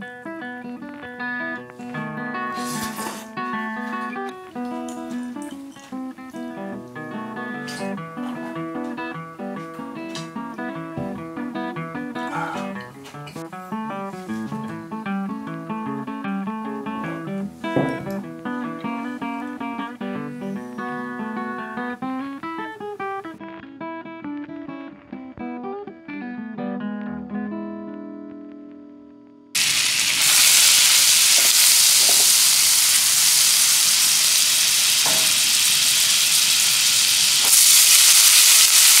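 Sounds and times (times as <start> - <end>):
acoustic guitar music: 0.0 - 37.1
frying sizzle: 2.1 - 5.7, 29.6 - 39.0.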